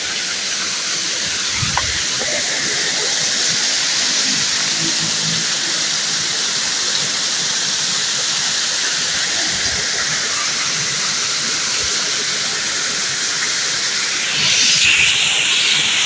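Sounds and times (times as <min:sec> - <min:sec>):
waterfall rushing: 0:01.1 - 0:04.7, 0:13.1 - 0:16.0.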